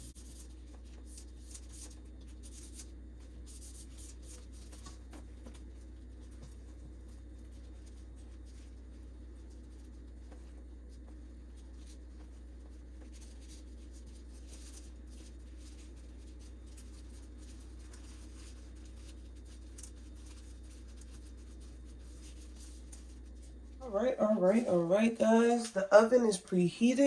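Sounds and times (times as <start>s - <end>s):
hands rustling wrappers: 11.6s - 23.8s.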